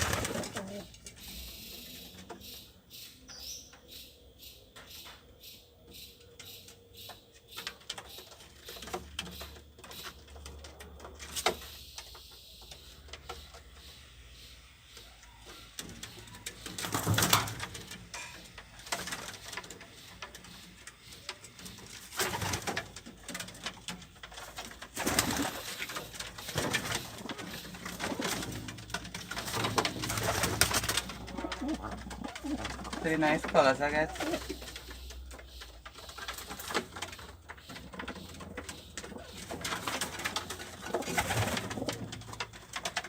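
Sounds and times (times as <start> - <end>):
pigeons cooing: 0.0 - 2.8, 24.5 - 43.0.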